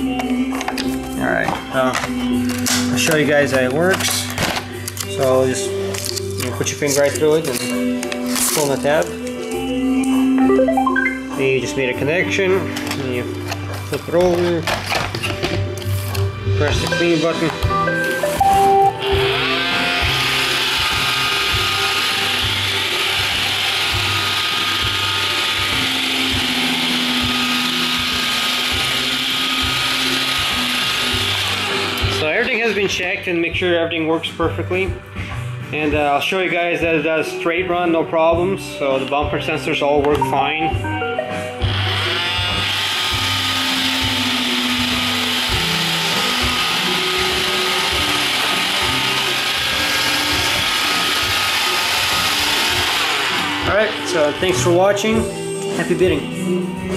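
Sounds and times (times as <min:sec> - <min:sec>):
robot vacuum whirring: 0:18.0 - 0:32.6, 0:41.7 - 0:54.5.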